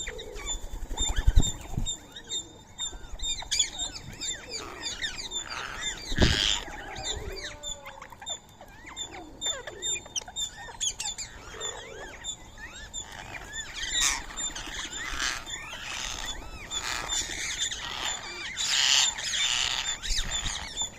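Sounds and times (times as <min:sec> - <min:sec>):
birds chirping and calling: 0:00.0 - 0:20.9
parakeet screeches: 0:05.5 - 0:08.9.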